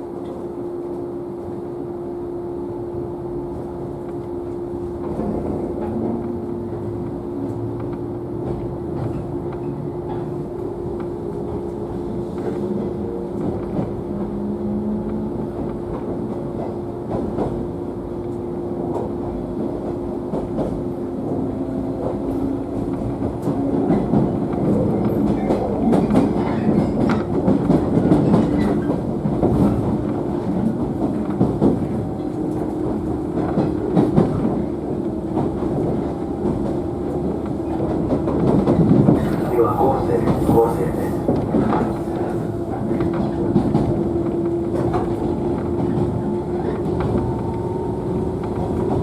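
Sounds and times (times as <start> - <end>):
rail-joint clickety-clack: 0.0 - 1.8, 3.4 - 49.0
train motor and gear hum: 0.0 - 49.0
train wheels rumbling: 0.0 - 49.0.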